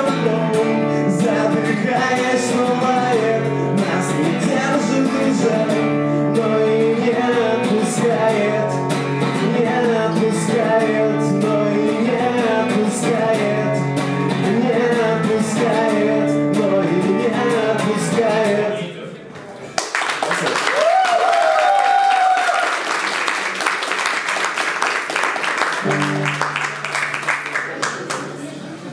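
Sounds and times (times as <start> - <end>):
strummed acoustic guitar: 0.0 - 18.8, 25.8 - 27.3
man singing: 0.0 - 18.9.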